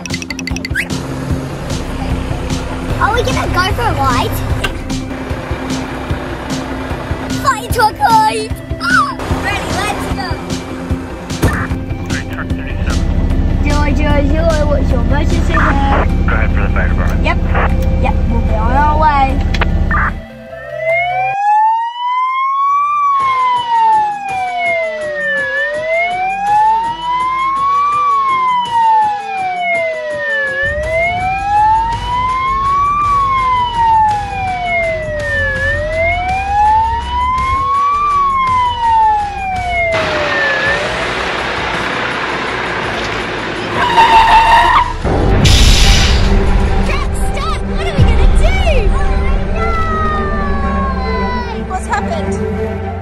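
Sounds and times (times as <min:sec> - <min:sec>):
low engine rumble: 0:00.9 - 0:20.3, 0:30.6 - 0:53.0
fire engine siren wailing: 0:19.4 - 0:45.1, 0:49.4 - 0:53.0
loud horn blare: 0:43.6 - 0:45.3.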